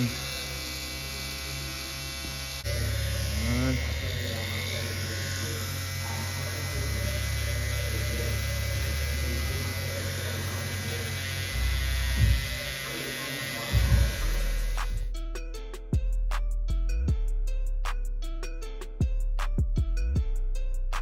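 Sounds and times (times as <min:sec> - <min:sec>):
tattoo machine buzzing: 0:00.0 - 0:15.1.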